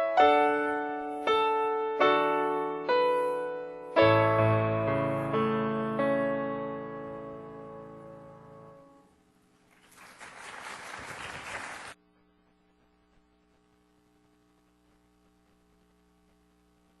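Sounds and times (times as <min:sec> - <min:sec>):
piano chord: 0:00.0 - 0:09.1
faint electrical hum: 0:00.1 - 0:17.0
audience applause: 0:09.7 - 0:12.0.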